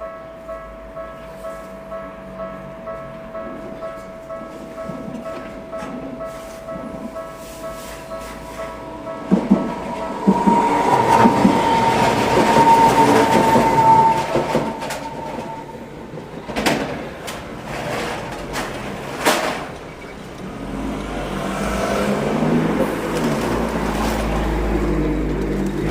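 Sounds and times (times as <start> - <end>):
train running past: 0.0 - 25.9
high whine: 4.8 - 16.2.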